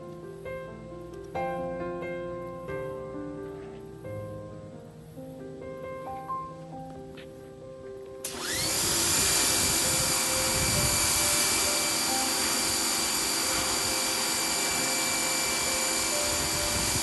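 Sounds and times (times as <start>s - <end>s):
pressure washer motor whining: 8.2s - 17.0s
high-pressure water spray hiss: 8.3s - 17.0s.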